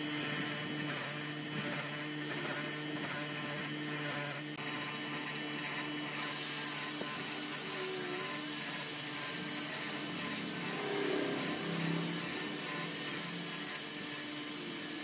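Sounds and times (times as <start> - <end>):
steady hum: 4.5 - 15.0.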